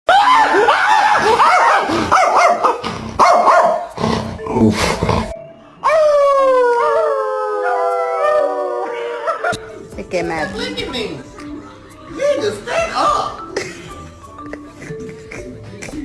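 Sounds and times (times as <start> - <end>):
dogs yipping and whining: 0.1 - 4.0
dog howling: 5.8 - 9.5.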